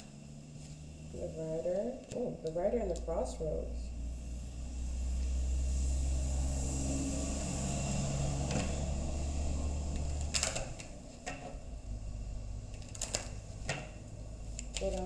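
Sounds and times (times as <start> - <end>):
low hum: 0.0 - 15.0
cards tapping on a table: 12.9 - 15.0.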